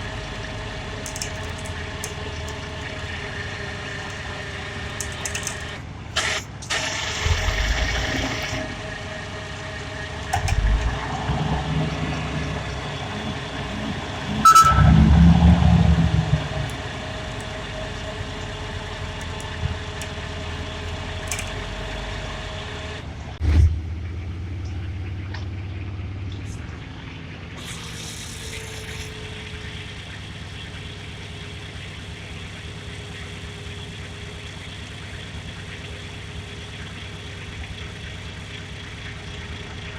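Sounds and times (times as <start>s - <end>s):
heavy truck engine rumbling: 0.0s - 39.9s.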